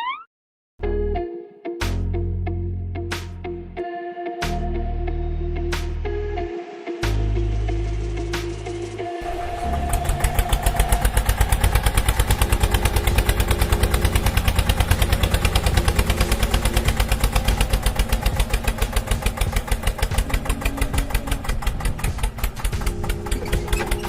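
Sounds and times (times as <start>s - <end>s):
tractor engine idling: 9.2s - 24.0s.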